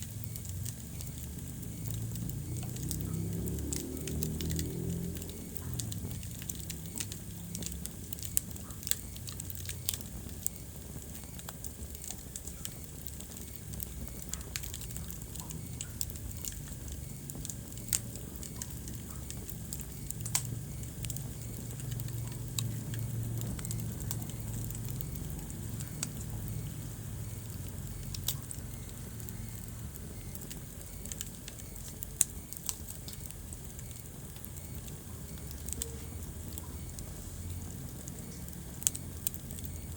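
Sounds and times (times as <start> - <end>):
low rumble of flames: 0.0 - 39.9
wood fire popping: 0.0 - 39.9.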